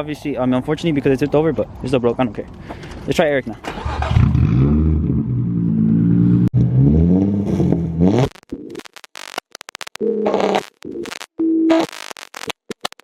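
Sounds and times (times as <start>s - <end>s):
car engine revving loud exhaust: 4.1s - 8.4s.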